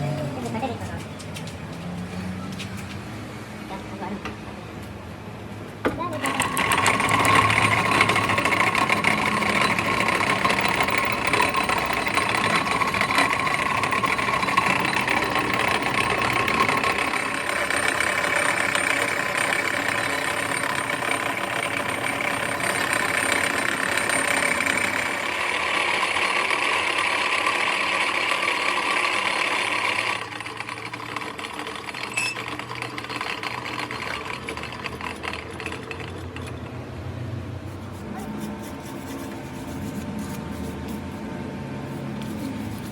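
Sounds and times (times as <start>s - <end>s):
workshop machinery rattling: 5.7s - 37.0s.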